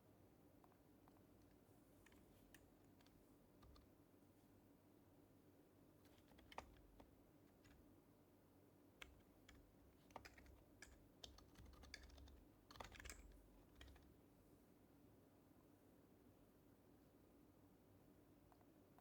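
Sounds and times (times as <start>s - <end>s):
soft keyboard typing: 0.7s - 4.0s, 6.0s - 8.0s, 9.0s - 14.2s.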